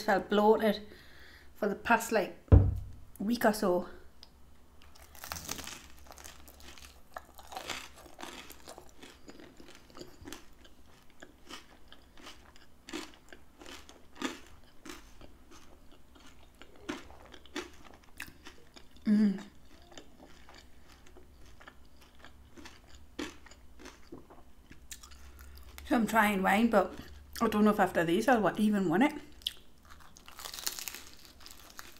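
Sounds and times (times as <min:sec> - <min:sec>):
crunchy bite: 0:04.8 - 0:18.8, 0:29.5 - 0:31.9
close-up crunchy chewing: 0:04.8 - 0:25.9, 0:29.4 - 0:31.9.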